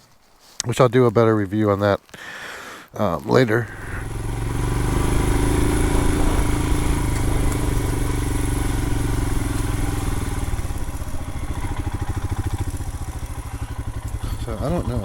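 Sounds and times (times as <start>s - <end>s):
motorcycle engine running: 3.5s - 15.0s.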